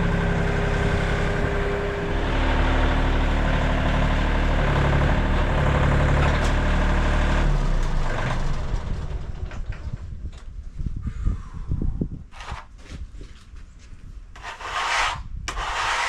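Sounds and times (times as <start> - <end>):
sawmill engine running: 0.0 - 9.4
knocks and scrapes: 12.3 - 16.0.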